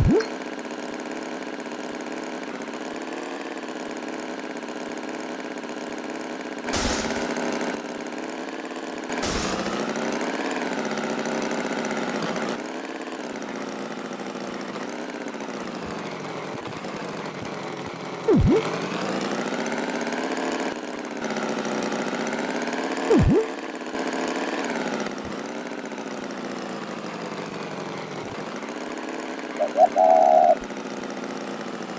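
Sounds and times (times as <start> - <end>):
engine-like drone: 6.7 - 7.4, 9.2 - 10.0, 18.3 - 18.8, 29.5 - 30.6.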